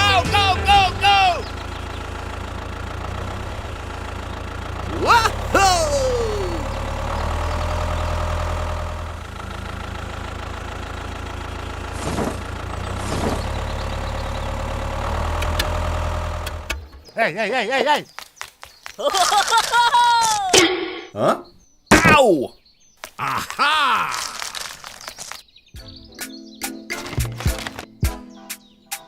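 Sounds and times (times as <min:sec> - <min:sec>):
small engine idling: 0:00.0 - 0:17.1.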